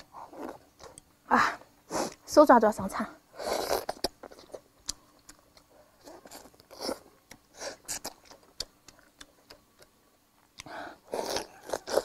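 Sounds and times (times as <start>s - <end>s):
chewing and biting meat: 11.1s - 12.0s.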